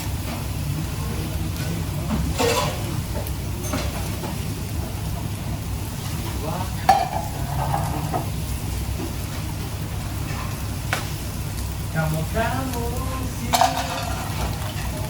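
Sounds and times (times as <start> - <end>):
food sizzling in a pan: 0.0 - 15.0
utensil clattering on pan: 2.3 - 2.9, 6.9 - 8.3, 13.5 - 15.0.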